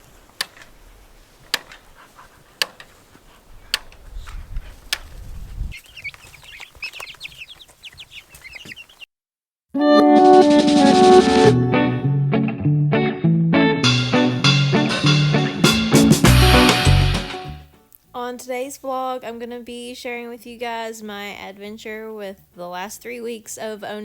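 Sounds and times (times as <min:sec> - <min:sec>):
chicks peeping: 0:02.2 - 0:09.1
guitar music: 0:09.8 - 0:17.6.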